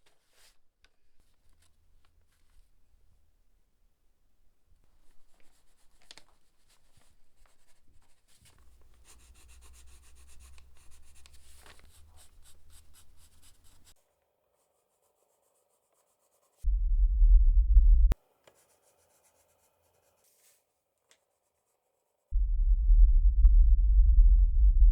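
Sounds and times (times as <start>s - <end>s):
faint scratching and rubbing strokes: 4.8s - 16.7s, 18.2s - 22.4s
low rumble: 16.7s - 18.2s, 22.4s - 24.9s.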